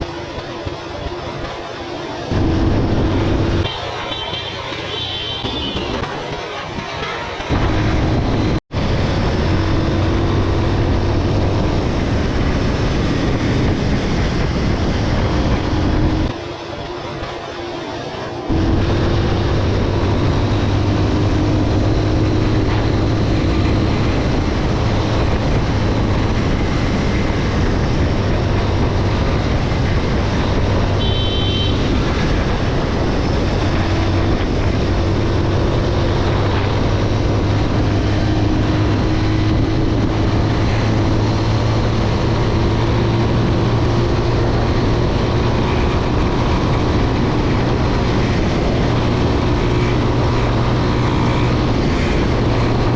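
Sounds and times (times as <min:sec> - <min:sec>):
wind and road noise: 0:00.0 - 0:52.9
motorcycle engine running: 0:02.3 - 0:03.8, 0:18.5 - 0:52.9.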